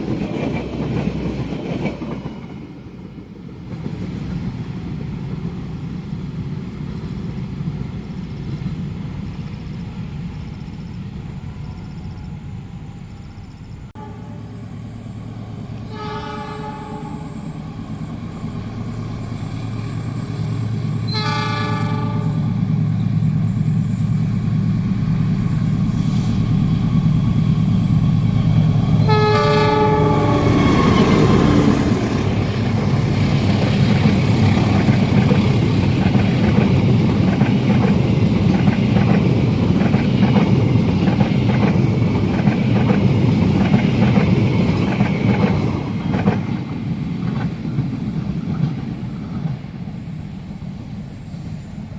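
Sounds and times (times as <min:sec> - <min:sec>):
train rumble with wheel clatter: 0:00.0 - 0:51.9
locomotive horn: 0:14.0 - 0:14.5, 0:15.8 - 0:17.4, 0:21.1 - 0:22.5, 0:29.0 - 0:31.9.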